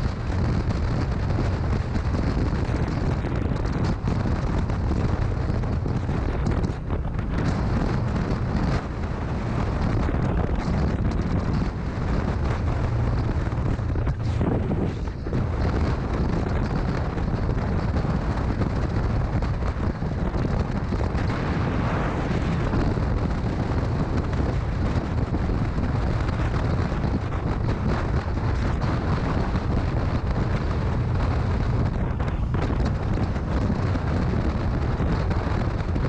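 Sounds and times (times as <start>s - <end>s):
motorcycle engine running: 0.0s - 36.0s
wind buffeting microphone: 0.0s - 36.0s.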